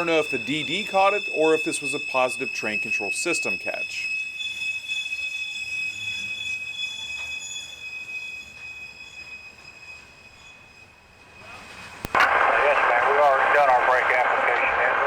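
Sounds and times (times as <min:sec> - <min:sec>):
train wheels squealing: 0:00.0 - 0:12.0.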